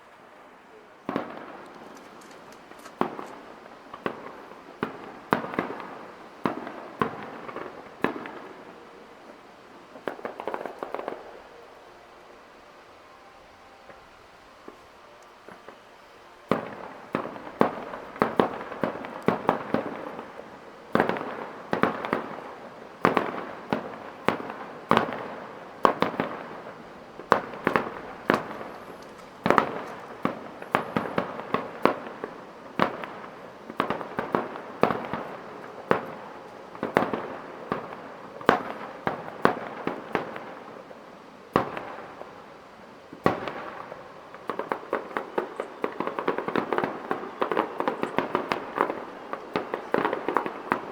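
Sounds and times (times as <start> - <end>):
fireworks bangs: 0.0 - 50.9
fireworks crackling: 0.0 - 50.9.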